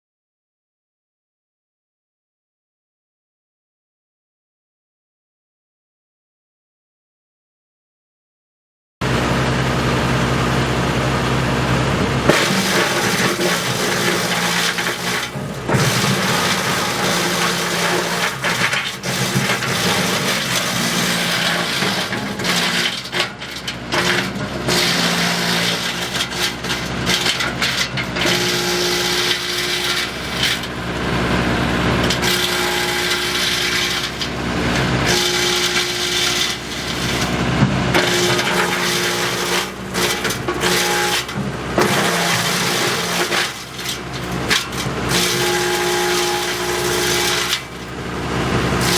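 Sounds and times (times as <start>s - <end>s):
wood chipper running: 9.0s - 48.9s
wood cracking and crunching: 12.3s - 31.2s, 32.0s - 48.9s.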